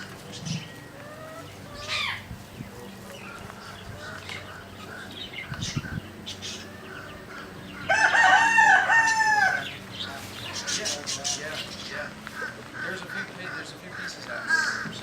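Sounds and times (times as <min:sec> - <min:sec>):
bird calls and chirps: 0:00.0 - 0:15.0
rooster crowing: 0:06.6 - 0:09.8.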